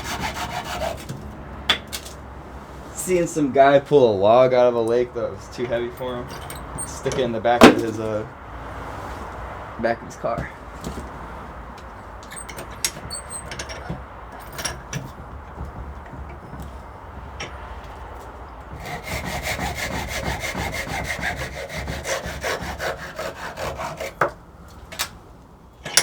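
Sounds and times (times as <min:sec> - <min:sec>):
saw cutting wood: 0:00.0 - 0:01.1, 0:06.8 - 0:08.1, 0:18.7 - 0:24.4
knocks and scrapes: 0:05.6 - 0:08.2.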